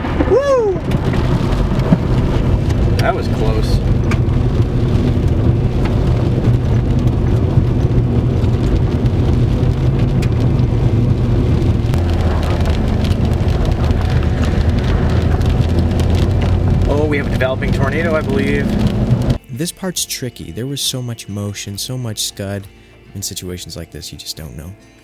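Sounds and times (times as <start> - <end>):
engine and road noise: 0.0 - 19.4
heavy rain on car: 0.0 - 19.4.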